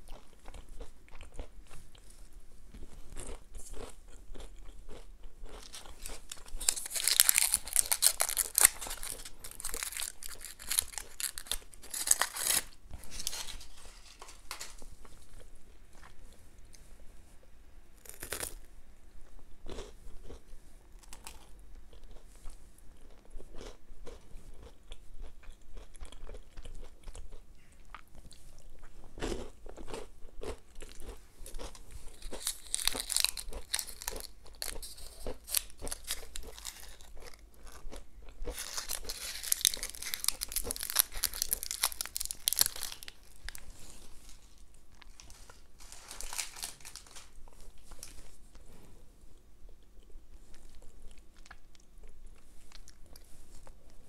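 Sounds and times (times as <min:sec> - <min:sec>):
chewing and crunching chocolate: 0:00.0 - 0:16.9, 0:18.0 - 0:54.0
wrapper crinkling: 0:05.6 - 0:14.9, 0:32.1 - 0:37.1, 0:38.5 - 0:48.3.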